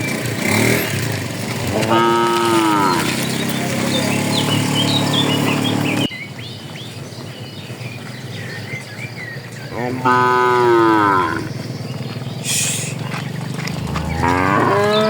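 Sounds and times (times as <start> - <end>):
birds chirping: 0.0 - 15.0
cattle mooing: 1.5 - 5.8, 9.7 - 11.5, 13.6 - 15.0
short hiss: 12.4 - 13.0.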